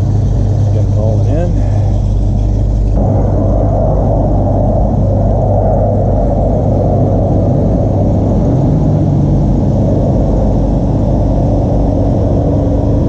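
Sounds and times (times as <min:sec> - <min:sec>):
car engine running: 0:00.0 - 0:05.3.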